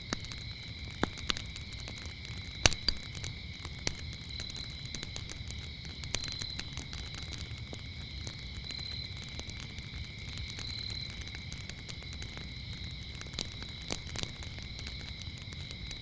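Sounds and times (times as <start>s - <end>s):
crickets chirping: 0.0s - 16.0s
wood fire crackling and popping: 0.0s - 16.0s.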